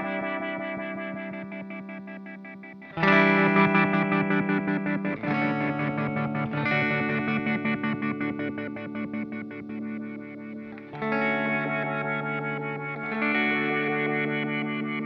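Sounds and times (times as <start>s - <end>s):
pulsing electric guitar chords: 0.0s - 15.0s.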